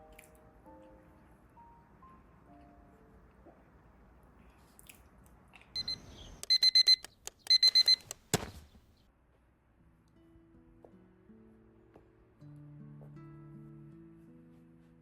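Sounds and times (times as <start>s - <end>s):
electronic alarm beeping: 5.8s - 8.2s.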